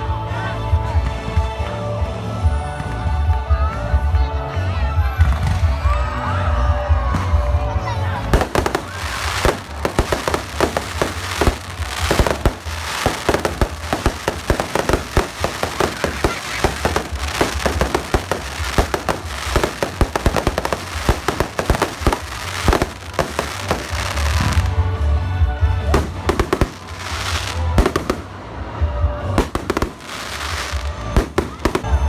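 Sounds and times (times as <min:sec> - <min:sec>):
fireworks crackling: 0:08.1 - 0:32.0.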